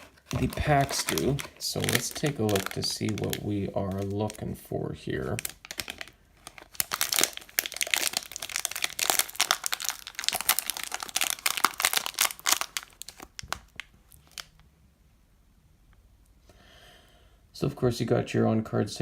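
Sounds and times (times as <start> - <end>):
wrapper crinkling: 0.0 - 14.6.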